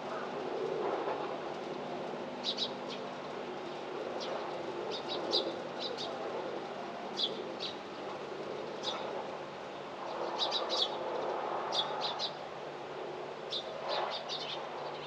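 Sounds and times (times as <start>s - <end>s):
small birds chirping: 2.4s - 3.1s, 3.7s - 6.2s, 7.1s - 7.9s, 9.7s - 12.4s, 13.5s - 15.0s.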